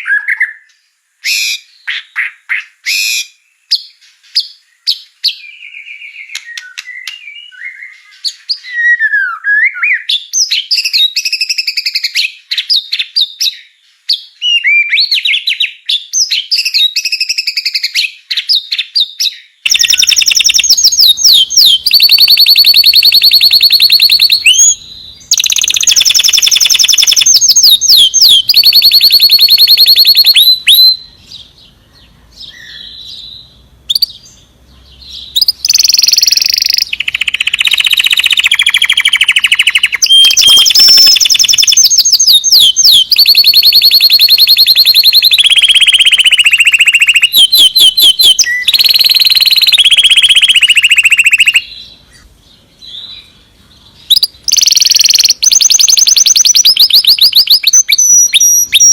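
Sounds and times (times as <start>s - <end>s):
fast buzzing bird trills: 19.7s - 31.0s, 35.1s - 51.7s.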